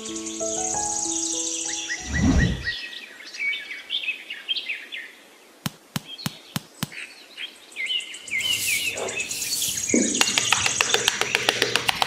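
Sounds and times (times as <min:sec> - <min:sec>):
small birds chirping: 0:00.0 - 0:12.0
sharp clicks or taps: 0:05.7 - 0:07.0, 0:10.1 - 0:12.0.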